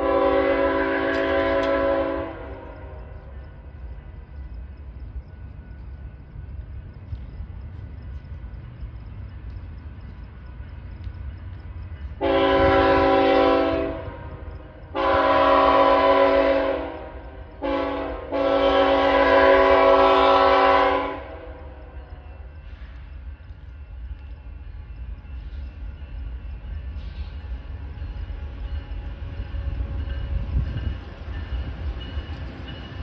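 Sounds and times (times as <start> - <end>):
locomotive air horn blasts: 0.0 - 3.2, 12.2 - 21.6.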